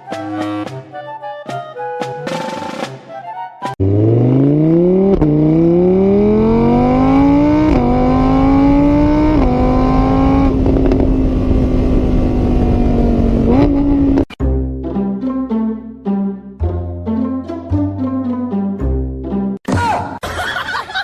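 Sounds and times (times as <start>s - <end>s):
engine accelerating through gears: 3.8s - 14.3s.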